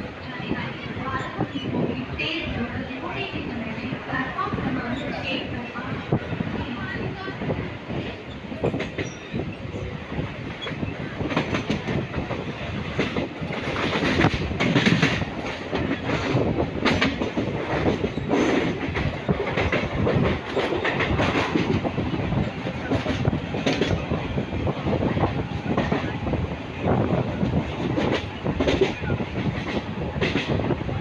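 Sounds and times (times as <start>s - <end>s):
train rumble: 0.0s - 31.0s.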